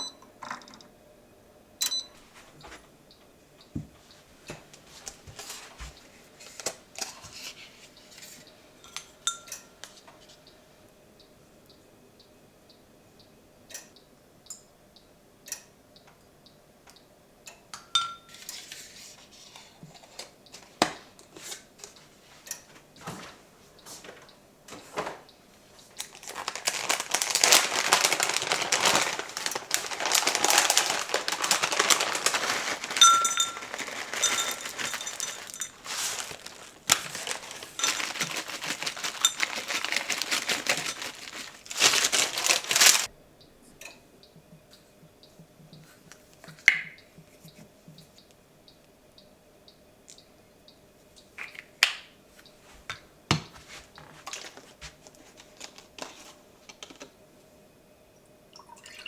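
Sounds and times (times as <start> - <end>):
packaging crinkling: 25.8 - 43.1, 53.6 - 57.2.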